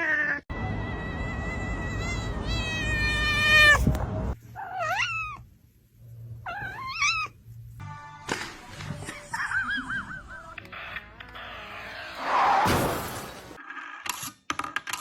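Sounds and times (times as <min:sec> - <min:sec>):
cat yowling: 0:01.0 - 0:03.9, 0:04.6 - 0:05.5, 0:06.4 - 0:07.4
cat meowing: 0:01.0 - 0:04.0, 0:04.6 - 0:05.5, 0:06.4 - 0:07.4.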